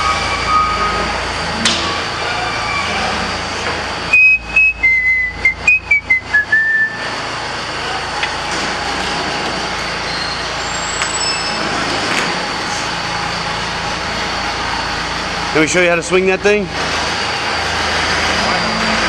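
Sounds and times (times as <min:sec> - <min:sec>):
steady background noise: 0:00.0 - 0:19.0
person whistling a tune: 0:04.1 - 0:07.1.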